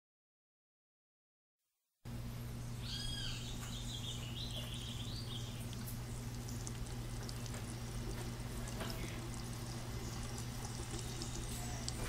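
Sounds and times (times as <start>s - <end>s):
low hum and hiss: 2.1s - 12.0s
bird chirping short calls: 2.8s - 6.6s.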